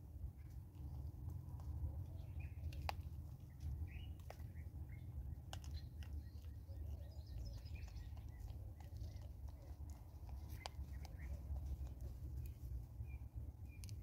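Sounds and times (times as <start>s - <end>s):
low steady rumble: 0.0s - 14.0s
dried corn kernels clicking: 5.2s - 12.7s.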